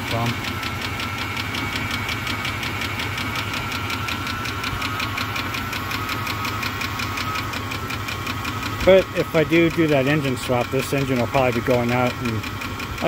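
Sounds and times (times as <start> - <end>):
car engine idling: 0.0 - 13.0
rapid regular engine ticking: 0.0 - 13.0.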